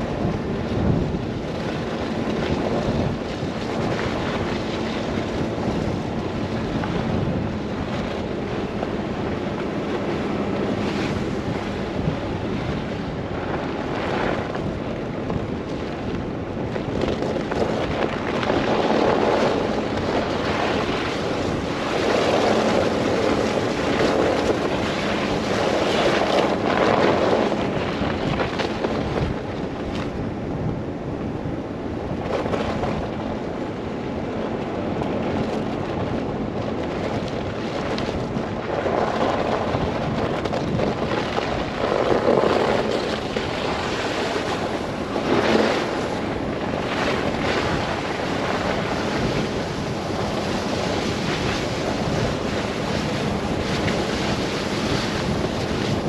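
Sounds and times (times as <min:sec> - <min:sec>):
wind rushing: 0:35.2 - 0:56.0.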